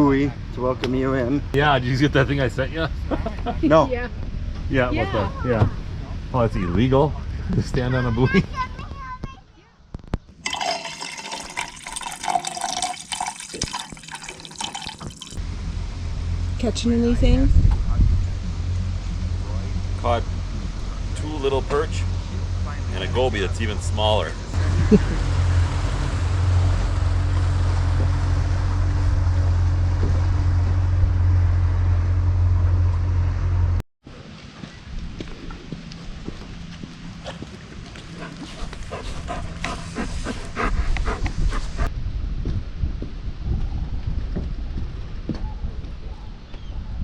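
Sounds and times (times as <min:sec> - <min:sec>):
water running and gurgling: 0:10.4 - 0:15.4
boat engine droning: 0:14.7 - 0:40.7
wind noise: 0:16.2 - 0:20.0, 0:34.8 - 0:47.0.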